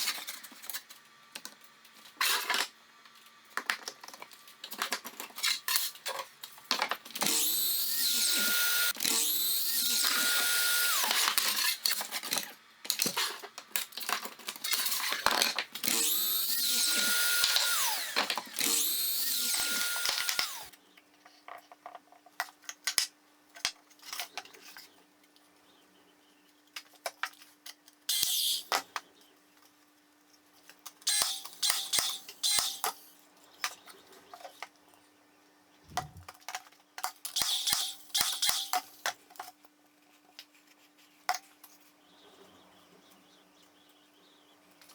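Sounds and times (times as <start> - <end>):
clicks and knocks of tools and wood: 0.0 - 7.3, 11.1 - 16.0, 26.7 - 33.0
electric drill motor spinning: 7.2 - 12.0, 15.8 - 20.7, 31.1 - 33.1.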